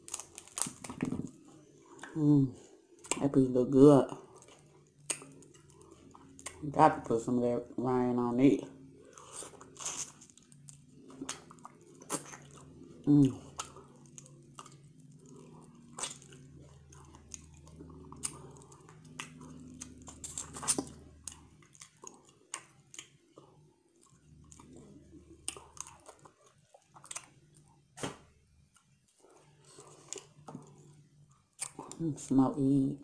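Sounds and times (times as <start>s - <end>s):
crab shell crunching: 0.0s - 1.3s, 9.1s - 23.2s
chewing with wet mouth sounds: 4.1s - 7.0s, 8.7s - 28.0s, 28.6s - 32.3s.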